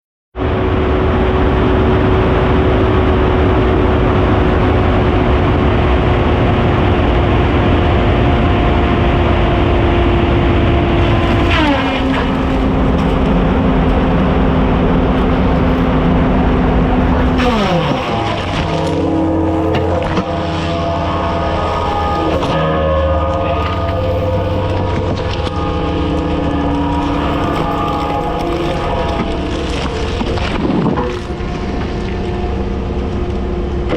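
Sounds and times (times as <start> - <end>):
saw motor running: 11.0 - 22.7.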